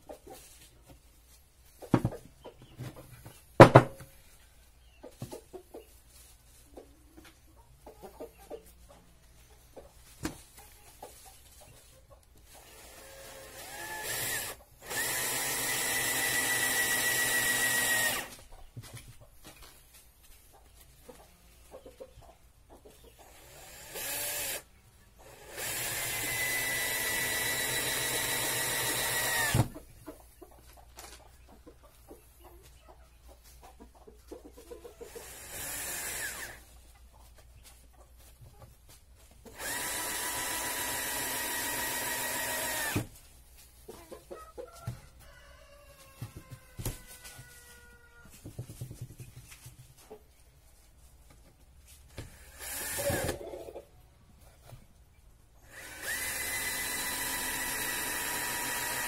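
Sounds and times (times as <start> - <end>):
chickens clucking: 0.0 - 12.7, 14.6 - 14.8, 18.3 - 23.6, 29.7 - 35.4, 36.6 - 39.6, 43.1 - 52.1, 53.2 - 55.6
power drill whining: 12.6 - 18.3, 23.2 - 29.7, 35.2 - 36.6, 39.5 - 43.1, 52.3 - 53.4, 55.6 - 59.0.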